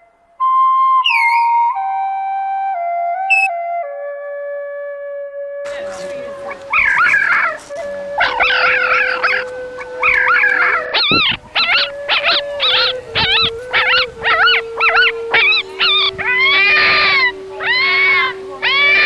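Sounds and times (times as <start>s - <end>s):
dog whining and howling: 6.4s - 19.0s.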